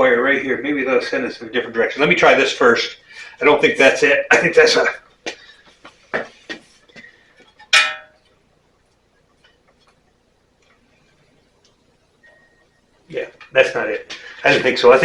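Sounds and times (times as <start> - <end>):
metallic clink: 7.6 - 8.2.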